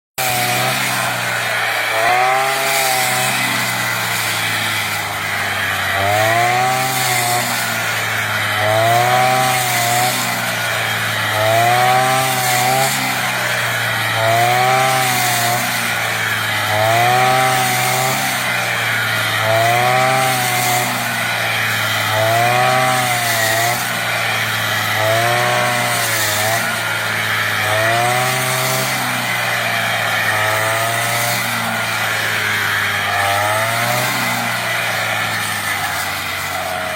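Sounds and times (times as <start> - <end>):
brush cutter engine cutting stalks: 0.2 - 36.9.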